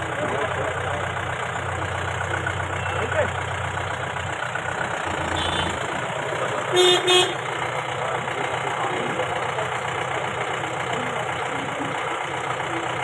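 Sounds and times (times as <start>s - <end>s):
vehicle engine running: 0.0s - 13.0s
vehicle horn beeps: 2.8s - 3.2s, 5.2s - 5.8s, 6.7s - 7.4s.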